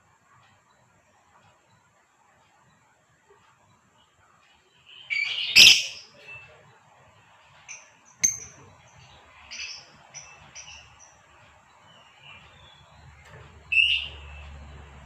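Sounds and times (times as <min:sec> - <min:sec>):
lovebird chirping: 0:04.8 - 0:06.4, 0:07.7 - 0:14.8
lovebird call: 0:04.9 - 0:06.4, 0:13.7 - 0:14.5.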